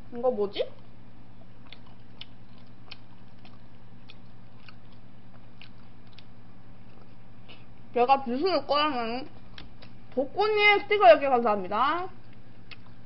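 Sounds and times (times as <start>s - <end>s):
steady low hum: 0.0s - 13.0s
person chewing food: 1.3s - 7.8s, 9.3s - 10.2s, 12.2s - 13.0s
wet mouth clicks: 1.6s - 6.3s, 9.4s - 10.1s.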